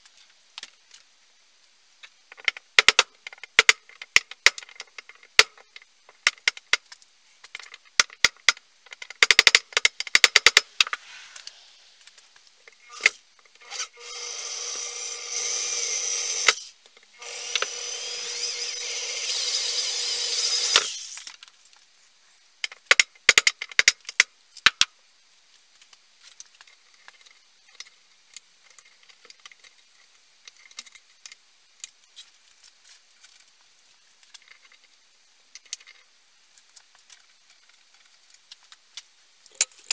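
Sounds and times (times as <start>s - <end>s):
small power tool running: 12.9s - 21.3s.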